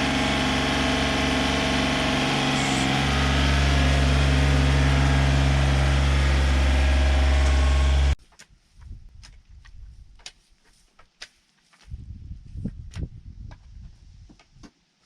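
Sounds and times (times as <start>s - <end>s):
tractor diesel engine running: 0.0s - 8.2s.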